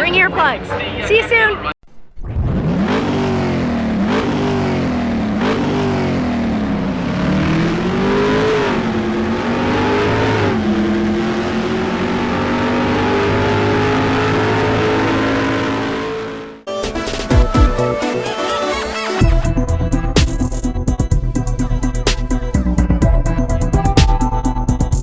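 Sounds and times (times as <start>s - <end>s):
racing motorcycle engines revving high: 2.3s - 17.9s.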